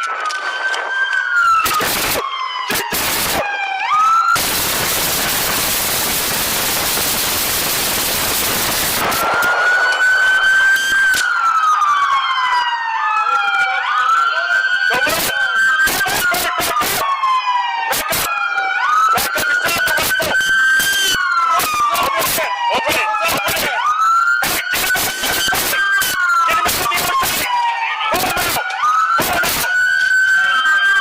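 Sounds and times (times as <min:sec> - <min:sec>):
sharp cracks: 0:00.0 - 0:03.5, 0:04.4 - 0:11.4
police siren wailing: 0:00.0 - 0:31.0.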